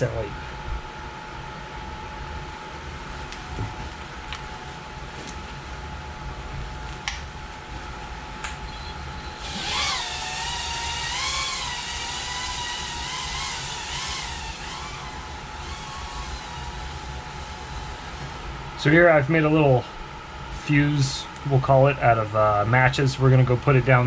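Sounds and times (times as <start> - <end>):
steady background hum: 0.0 - 24.0
small drone motors whining: 8.7 - 18.6.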